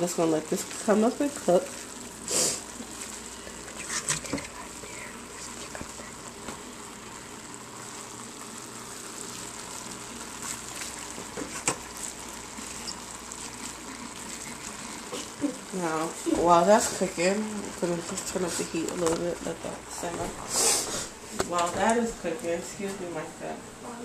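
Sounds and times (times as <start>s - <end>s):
meat sizzling in a frying pan: 0.0s - 22.4s
spatula stirring: 0.2s - 6.1s, 9.2s - 19.4s.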